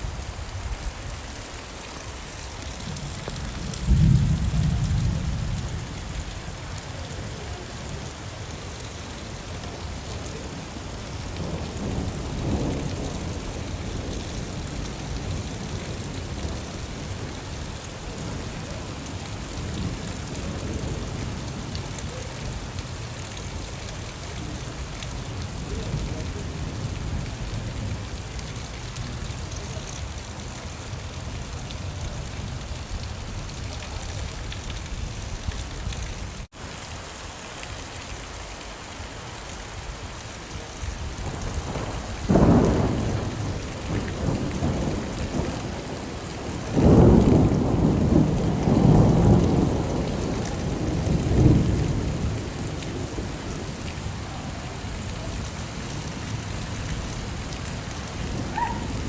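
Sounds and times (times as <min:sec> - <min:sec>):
heavy rain: 0:00.0 - 0:59.0
thunder rolling: 0:41.2 - 0:53.8.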